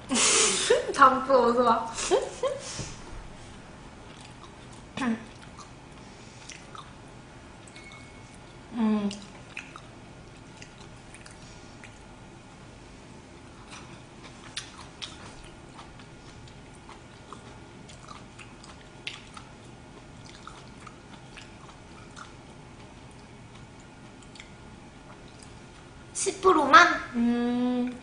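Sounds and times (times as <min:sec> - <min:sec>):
person chewing food: 0:03.5 - 0:07.0, 0:07.6 - 0:12.3, 0:13.2 - 0:26.0.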